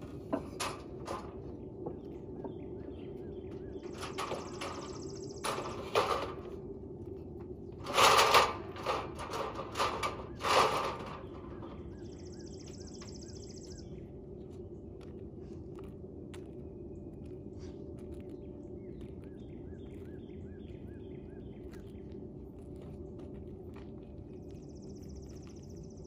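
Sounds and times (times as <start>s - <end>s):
bird chirping: 0.0s - 6.4s, 9.3s - 15.1s, 16.6s - 23.0s, 23.9s - 26.0s.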